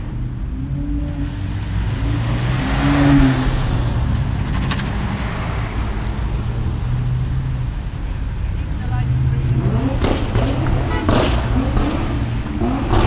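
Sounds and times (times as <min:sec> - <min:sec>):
car engines running at low revs: 0:00.0 - 0:13.0
car passing close: 0:01.0 - 0:08.0.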